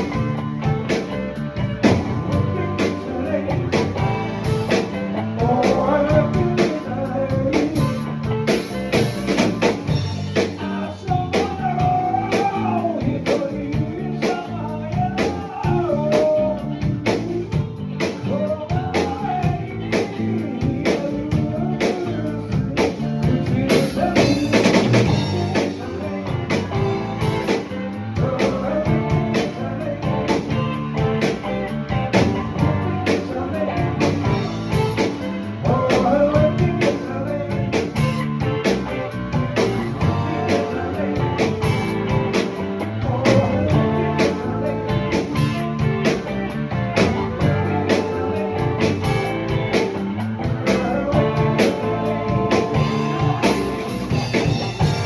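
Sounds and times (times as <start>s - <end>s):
drum kit: 0.0s - 55.0s
electric guitar: 0.0s - 55.0s
bending melody line: 23.2s - 55.0s.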